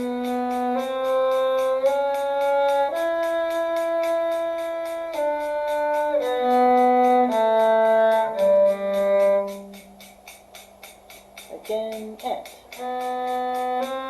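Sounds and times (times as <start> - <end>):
bowed string instrument notes: 0.0 - 10.2, 11.5 - 14.0
steady clicking beat: 0.0 - 14.0.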